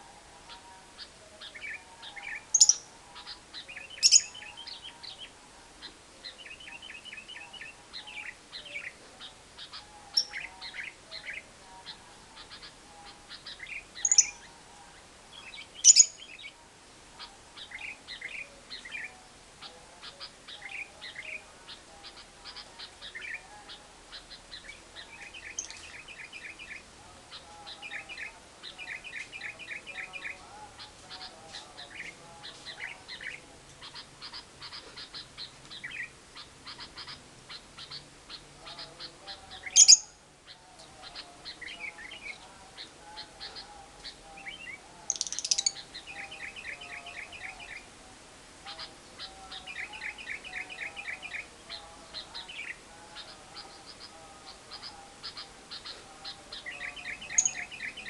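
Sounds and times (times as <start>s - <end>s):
lovebird chattering: 0.5s - 5.2s, 6.4s - 14.5s, 15.4s - 16.5s, 19.6s - 28.3s, 28.9s - 40.2s, 41.0s - 47.8s, 48.7s - 58.0s.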